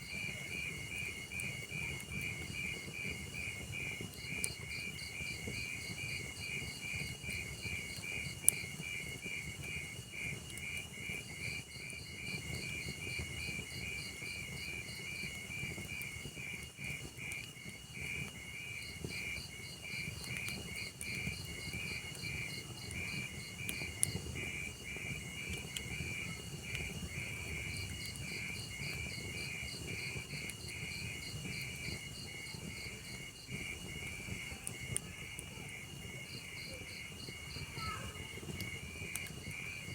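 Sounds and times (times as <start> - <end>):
wood fire crackling: 0.0 - 39.9
insects chirping: 10.6 - 39.9.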